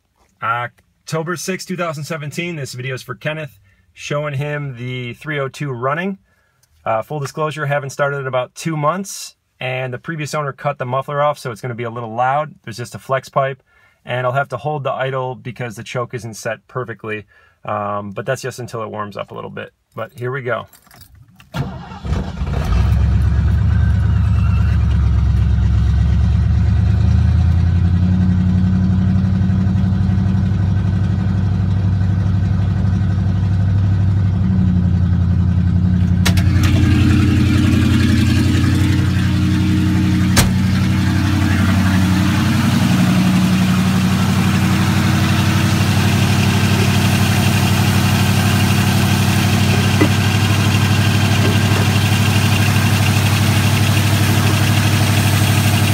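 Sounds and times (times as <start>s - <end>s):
loud engine idling unmuffled: 22.6s - 55.9s
sharp click: 40.4s - 40.6s.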